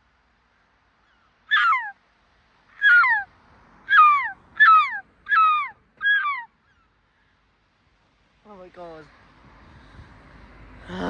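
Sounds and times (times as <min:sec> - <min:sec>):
seagull cries: 0:01.5 - 0:02.0, 0:02.8 - 0:03.3, 0:03.9 - 0:06.5.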